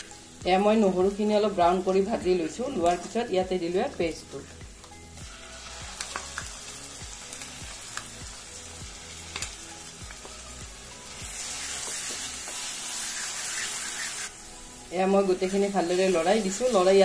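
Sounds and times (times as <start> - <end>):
paste sizzling in hot oil: 4.5 - 17.0
spoon scraping a pan: 11.4 - 14.3.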